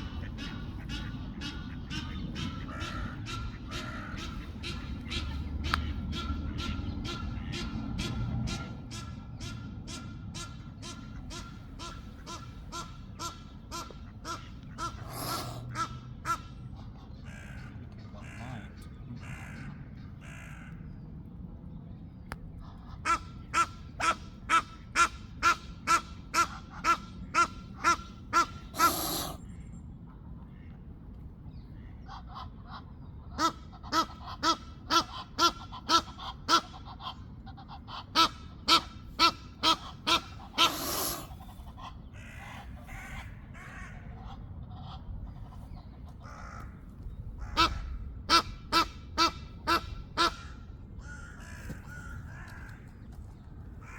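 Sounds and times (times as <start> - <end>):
geese honking harshly: 0.0 - 16.5, 23.0 - 29.4, 33.4 - 45.1, 47.4 - 52.8
goose rasping hiss: 28.8 - 29.4.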